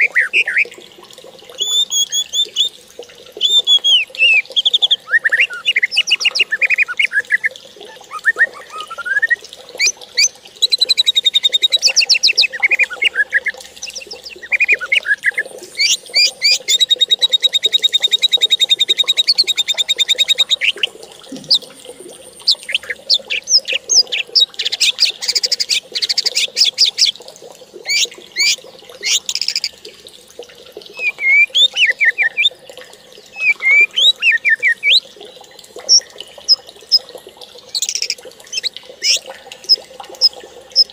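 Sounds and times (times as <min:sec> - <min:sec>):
birds singing and calling: 0:00.0 - 0:00.8, 0:01.6 - 0:02.8, 0:03.4 - 0:27.2, 0:27.8 - 0:29.8, 0:30.9 - 0:37.1, 0:37.7 - 0:40.9
long rapid bird trill: 0:37.7 - 0:39.3.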